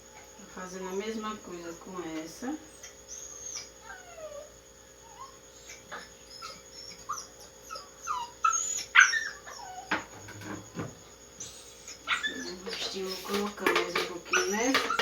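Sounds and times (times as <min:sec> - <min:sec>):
dog whimpering and whining: 0:02.7 - 0:10.6, 0:11.4 - 0:13.5, 0:14.2 - 0:15.0.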